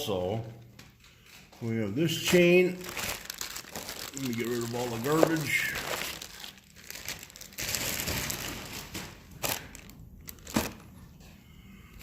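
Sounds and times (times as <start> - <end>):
packaging being crumpled by hand: 2.2 - 11.0.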